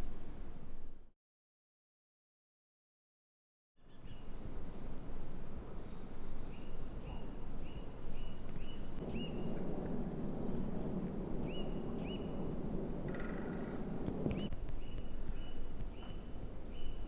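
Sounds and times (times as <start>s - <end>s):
bird chirping: 3.8s - 4.9s, 5.8s - 17.0s
steady outdoor rushing: 9.0s - 14.7s.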